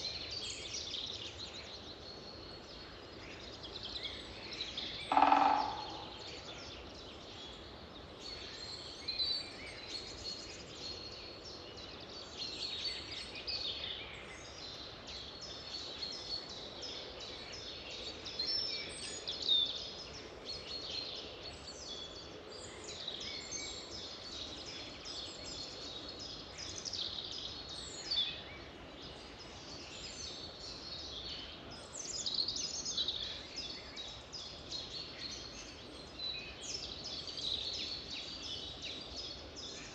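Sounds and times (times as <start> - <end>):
steady background hiss: 0.0 - 39.9
wild birds singing: 0.0 - 39.9.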